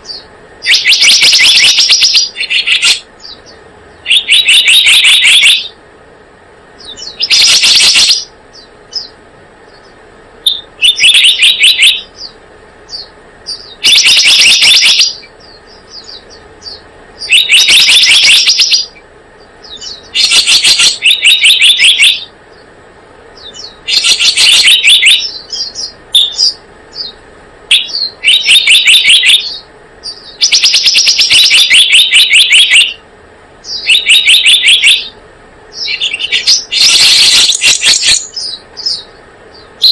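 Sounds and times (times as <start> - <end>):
bird trilling chirps: 0.0 - 5.8, 6.8 - 39.9.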